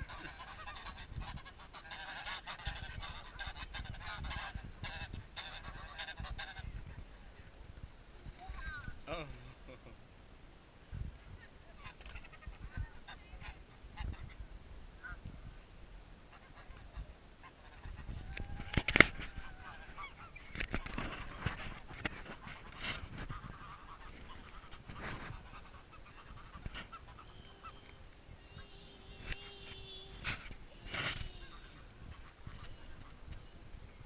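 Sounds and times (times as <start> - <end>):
birds calling: 16.4 - 34.0.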